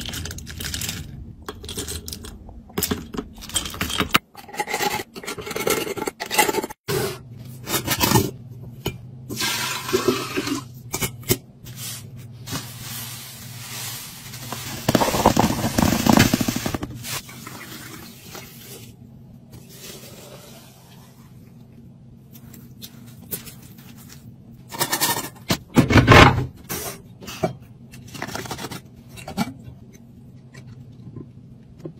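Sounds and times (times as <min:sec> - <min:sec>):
food packaging being handled: 0:00.0 - 0:01.2, 0:11.7 - 0:17.2, 0:28.1 - 0:28.9.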